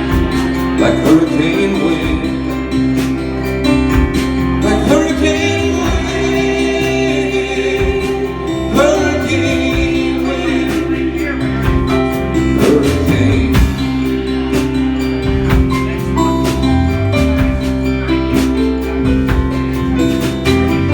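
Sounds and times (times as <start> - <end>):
person singing wordless vocals: 0.0 - 15.0
live band playing rock ballad: 0.0 - 20.9.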